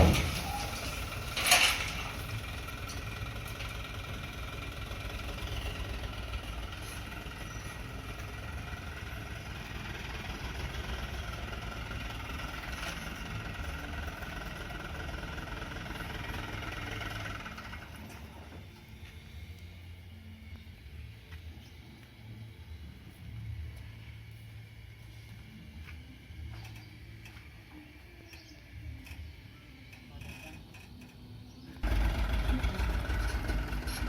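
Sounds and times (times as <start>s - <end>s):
dump truck diesel engine running: 0.0s - 20.2s, 31.8s - 34.0s.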